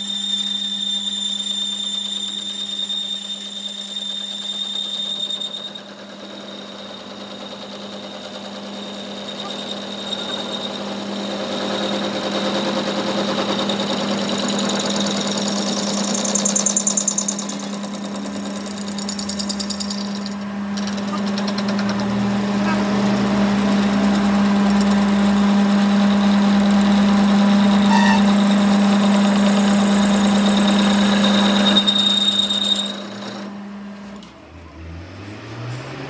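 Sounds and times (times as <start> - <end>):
high whining tones: 0.0 - 33.6
machinery humming: 5.9 - 34.6
fast rattling noise: 13.2 - 22.2.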